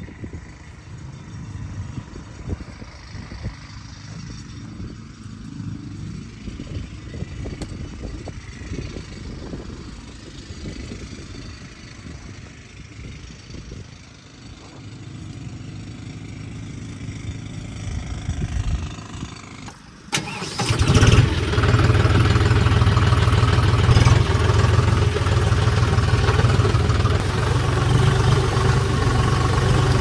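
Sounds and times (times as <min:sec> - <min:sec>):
vehicle engine running: 0:00.1 - 0:30.0
low rumbling and thumps: 0:21.7 - 0:30.0.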